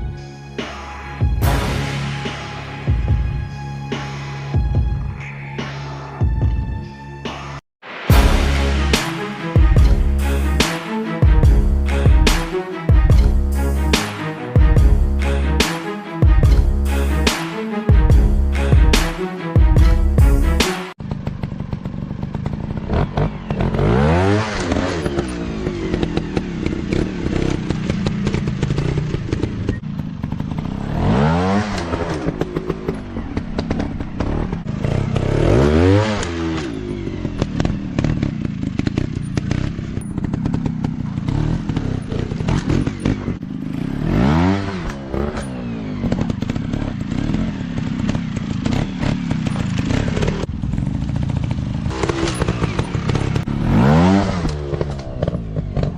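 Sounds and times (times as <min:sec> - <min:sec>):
dirt bike engines revving: 0:21.2 - 0:55.9.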